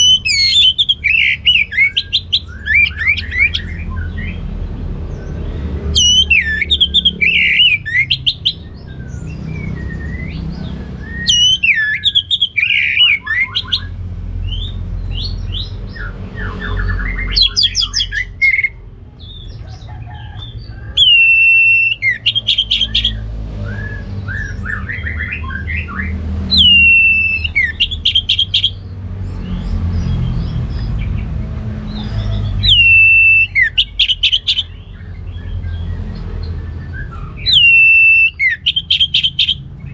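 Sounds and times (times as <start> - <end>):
bird singing whistles and trills: 0.0 - 4.5, 5.1 - 19.5, 20.2 - 28.9, 31.9 - 39.9.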